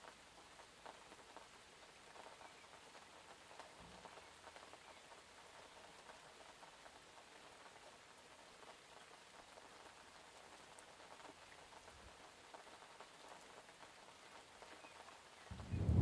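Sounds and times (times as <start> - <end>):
faint rain pattering: 0.0 - 16.0
low thud: 15.5 - 16.0.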